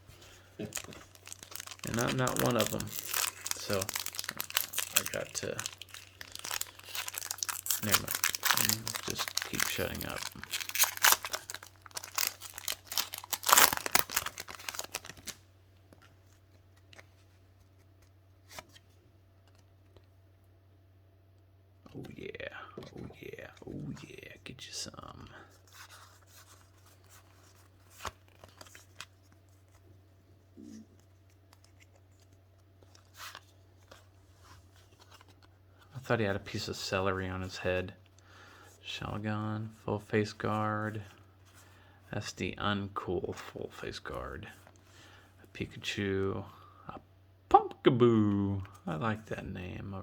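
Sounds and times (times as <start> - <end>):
low electrical hum: 0.0 - 50.0
foil wrapper crinkling: 0.3 - 15.4
trading cards rustling and clicking: 0.6 - 18.8.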